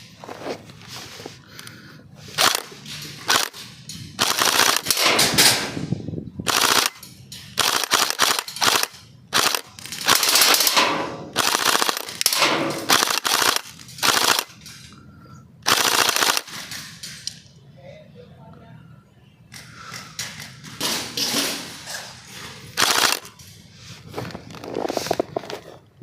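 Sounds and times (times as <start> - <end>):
airsoft guns firing bursts: 2.3 - 5.8, 6.5 - 7.0, 7.6 - 14.6, 15.6 - 17.0, 22.8 - 23.3.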